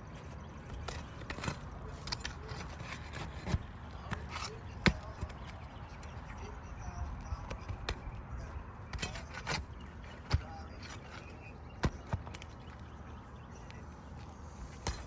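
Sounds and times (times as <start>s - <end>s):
hand tools knocking on shingles: 0.6s - 6.3s, 7.1s - 12.8s.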